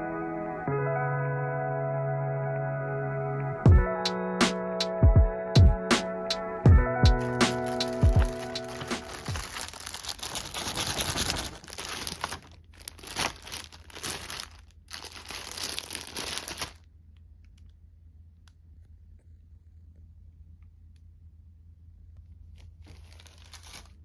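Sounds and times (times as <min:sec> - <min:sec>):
intro music: 0:00.0 - 0:09.5
crinkling and rustling: 0:07.2 - 0:16.8, 0:22.2 - 0:24.0.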